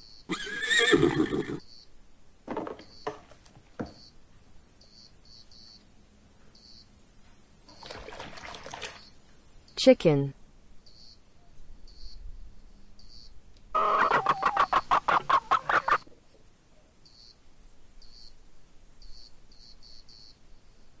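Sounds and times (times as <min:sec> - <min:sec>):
hen clucking: 0:13.8 - 0:16.0.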